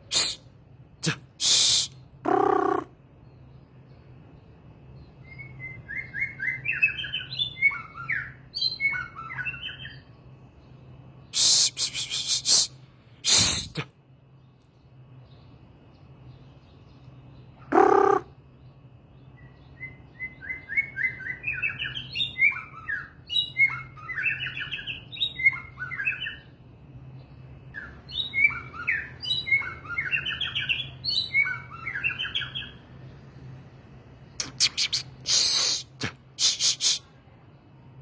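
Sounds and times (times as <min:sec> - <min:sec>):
songbird singing: 0:00.1 - 0:38.0
steady low hum: 0:32.5 - 0:35.3.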